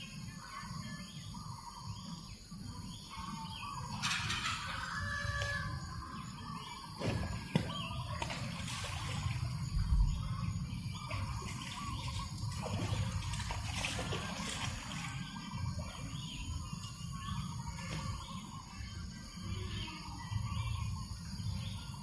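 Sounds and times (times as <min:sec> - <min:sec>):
small birds chirping: 0:00.0 - 0:22.0
wind rumbling on microphone: 0:03.8 - 0:16.7.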